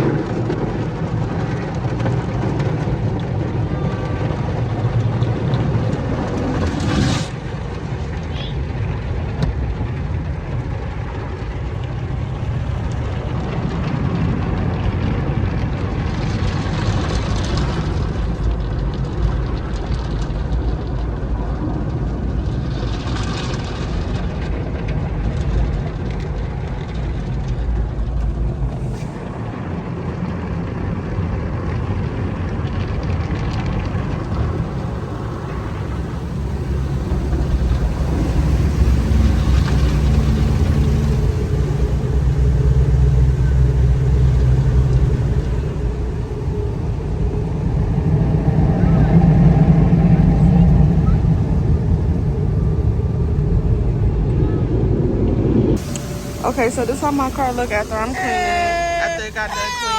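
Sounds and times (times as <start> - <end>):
car wash equipment drone: 0.0 - 59.9
hissing bursts: 33.9 - 54.2, 55.8 - 59.9.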